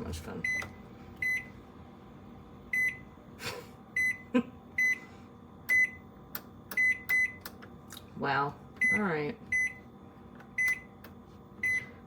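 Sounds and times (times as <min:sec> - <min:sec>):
faint steady hum: 0:00.0 - 0:12.0
control panel beeps: 0:02.7 - 0:03.0, 0:04.0 - 0:04.2, 0:05.7 - 0:06.0, 0:06.7 - 0:07.5, 0:08.8 - 0:09.8, 0:10.6 - 0:10.9, 0:11.6 - 0:11.9.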